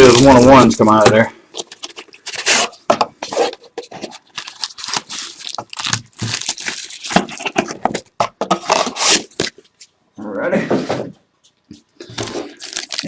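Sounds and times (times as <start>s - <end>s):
plastic wrapping crinkling and tearing: 0.0s - 9.8s, 12.0s - 13.0s.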